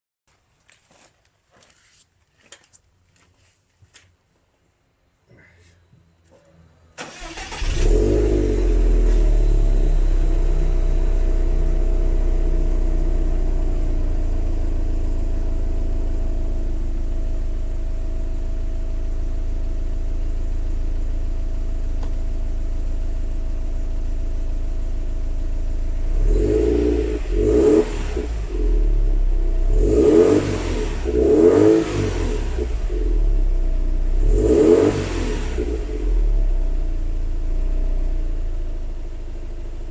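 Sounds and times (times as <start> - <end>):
car engine starting and idling: 6.2 - 39.9
engine revving: 7.0 - 14.8, 25.9 - 36.9.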